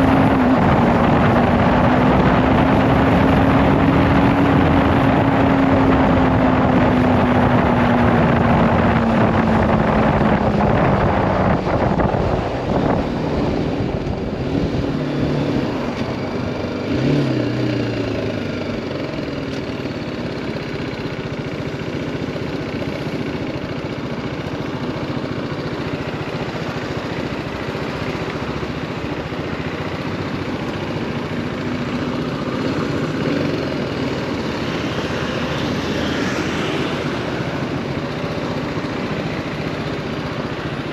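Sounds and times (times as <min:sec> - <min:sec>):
wind rush: 0:00.0 - 0:16.2
motorcycle engine running: 0:00.0 - 0:40.9.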